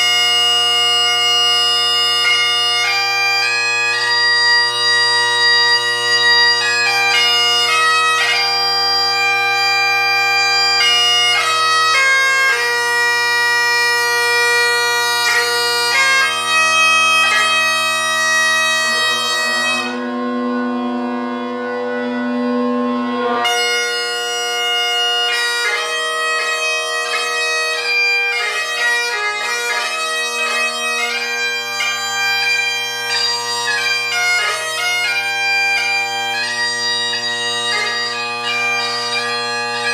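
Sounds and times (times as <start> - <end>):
bagpipes playing: 0.0 - 39.9.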